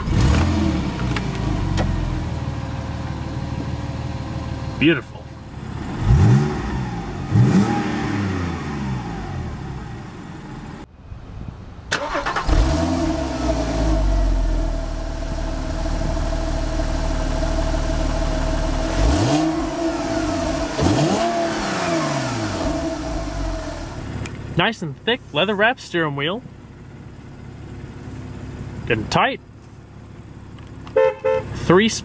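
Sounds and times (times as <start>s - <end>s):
car engine revving and idling: 0.0s - 10.9s, 12.0s - 32.0s.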